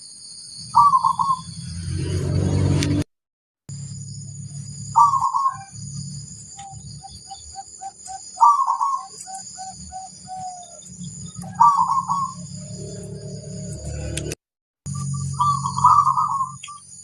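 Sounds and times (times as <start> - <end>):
dove cooing: 0.8 - 1.4, 5.0 - 5.7, 6.6 - 13.0, 15.0 - 16.8.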